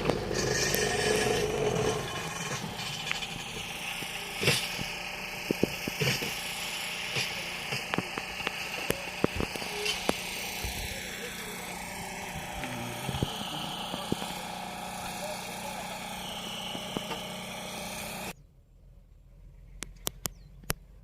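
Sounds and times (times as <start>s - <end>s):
sharp clicks and knocks: 0.0s - 11.0s, 16.0s - 17.8s
engine running: 0.0s - 21.0s
outdoor background: 0.0s - 21.0s.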